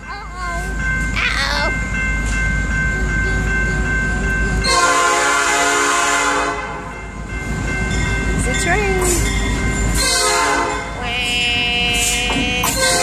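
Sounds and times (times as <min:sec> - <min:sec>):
crossing bells ringing: 0:00.0 - 0:13.0
train rumble: 0:00.0 - 0:13.0
locomotive horn blast: 0:04.7 - 0:06.9, 0:10.0 - 0:13.0.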